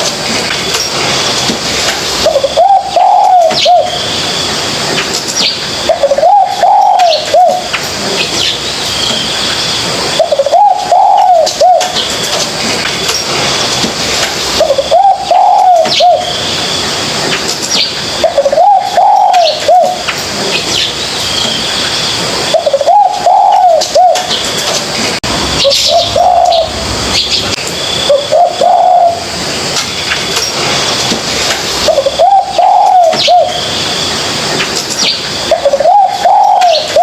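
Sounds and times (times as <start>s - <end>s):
dove cooing: 2.2s - 4.0s, 5.9s - 7.7s, 10.2s - 12.0s, 14.6s - 16.3s, 18.2s - 20.0s, 22.5s - 24.4s, 25.6s - 27.3s, 28.0s - 29.3s, 31.8s - 33.6s, 35.5s - 37.0s
birds chirping and whistling: 2.2s - 12.4s, 14.5s - 24.8s, 25.4s - 31.1s, 31.7s - 37.0s.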